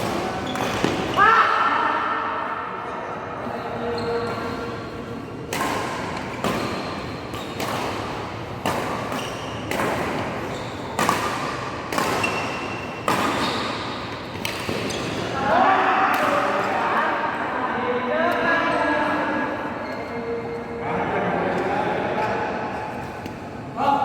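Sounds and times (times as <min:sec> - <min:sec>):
rackets striking shuttlecock: 0:00.0 - 0:01.1, 0:05.5 - 0:15.2.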